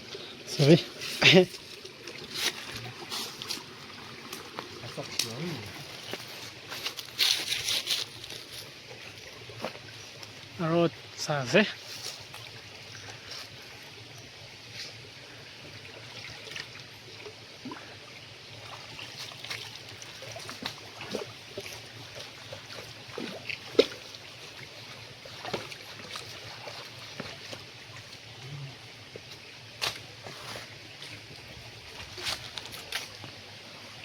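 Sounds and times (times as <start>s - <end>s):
stream water trickling: 0.0s - 34.0s
small splashes and knocks: 1.1s - 10.4s, 18.6s - 28.4s.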